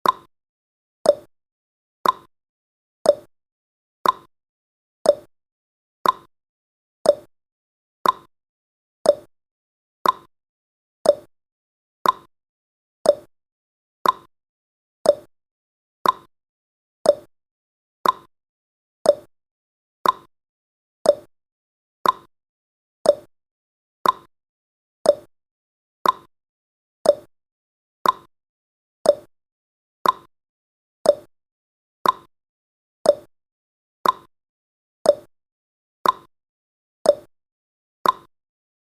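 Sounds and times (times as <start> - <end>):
timer ticking clicks: 0.0 - 0.3, 1.0 - 1.3, 2.0 - 2.3, 3.0 - 3.3, 4.0 - 4.3, 5.0 - 5.3, 6.0 - 6.3, 7.0 - 7.3, 8.0 - 8.3, 9.0 - 9.3, 10.0 - 10.3, 11.0 - 11.3, 12.0 - 12.3, 13.0 - 13.3, 14.0 - 14.3, 15.0 - 15.3, 16.0 - 16.3, 17.0 - 17.3, 18.0 - 18.3, 19.0 - 19.3, 20.0 - 20.3, 21.0 - 21.3, 22.0 - 22.3, 23.0 - 23.3, 24.0 - 24.3, 25.0 - 25.3, 26.0 - 26.3, 27.0 - 27.3, 28.0 - 28.3, 29.0 - 29.3, 30.0 - 30.3, 31.0 - 31.3, 32.0 - 32.3, 33.0 - 33.3, 34.0 - 34.3, 35.0 - 35.3, 36.0 - 36.3, 37.0 - 37.3, 38.0 - 38.3.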